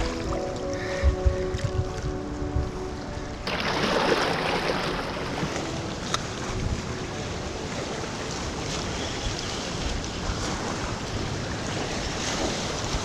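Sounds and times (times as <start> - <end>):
wind on microphone: 0.0 - 13.0
river water rushing: 2.9 - 13.0.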